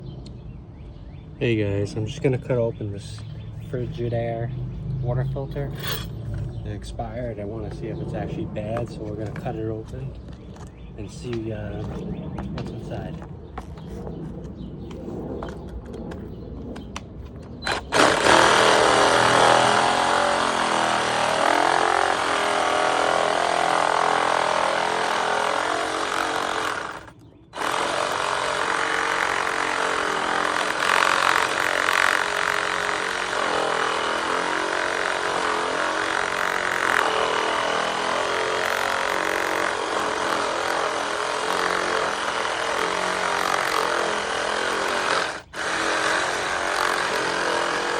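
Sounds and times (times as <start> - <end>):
power tool cutting plastic: 17.6 - 47.9.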